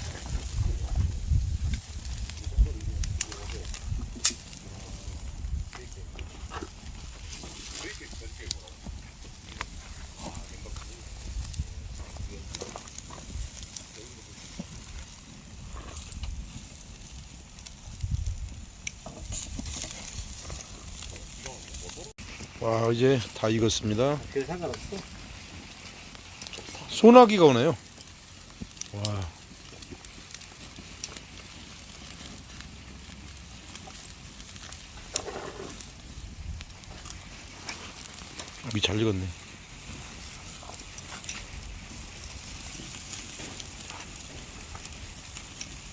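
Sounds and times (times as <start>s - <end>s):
wind rumbling on microphone: 0.0s - 22.6s, 32.3s - 38.6s, 39.3s - 45.9s
rain hiss: 0.0s - 45.9s
raindrops pattering: 0.0s - 45.9s
wood fire crackling: 0.0s - 45.9s.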